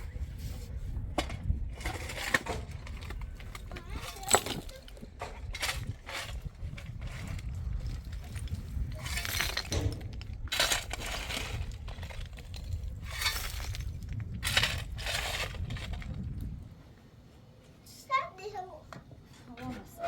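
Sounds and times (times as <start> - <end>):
gritty scraping strokes: 1.7 - 16.3.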